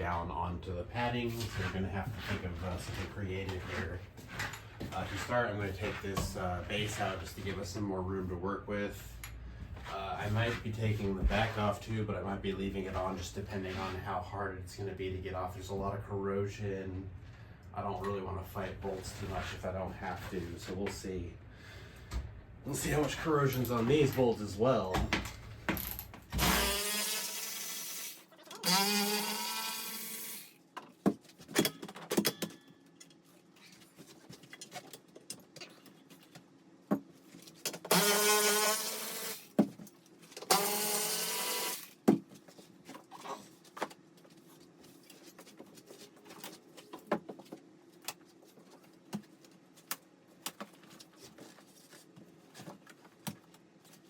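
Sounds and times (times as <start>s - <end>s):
power drill whining: 26.4s - 30.5s, 37.9s - 39.5s, 40.5s - 41.9s.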